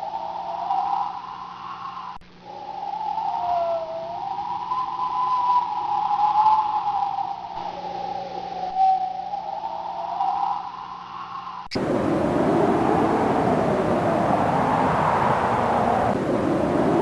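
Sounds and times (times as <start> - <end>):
low steady hum: 11.7 - 17.0
wind howling: 11.7 - 17.0.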